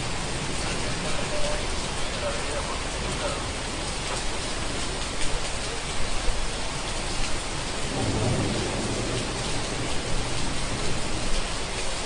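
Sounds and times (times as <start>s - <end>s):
steady rain falling: 0.0s - 12.0s
low roll of thunder: 7.6s - 12.0s.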